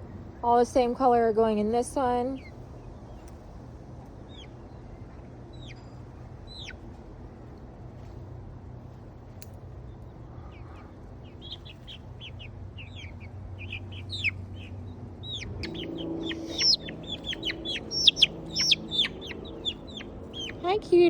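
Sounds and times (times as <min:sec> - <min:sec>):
steady low hum: 0:00.0 - 0:21.0
chicks peeping: 0:04.3 - 0:06.8, 0:10.5 - 0:20.9.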